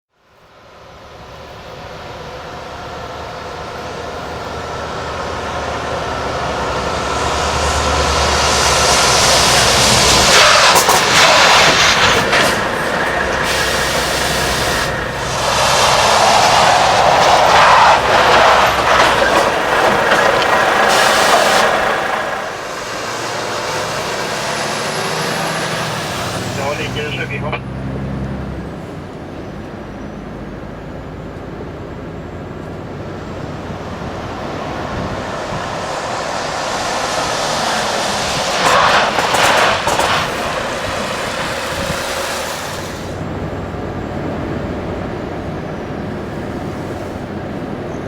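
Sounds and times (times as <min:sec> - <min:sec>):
truck driving: 0:00.1 - 0:48.0
truck brakes hissing: 0:01.4 - 0:27.5, 0:33.4 - 0:43.5.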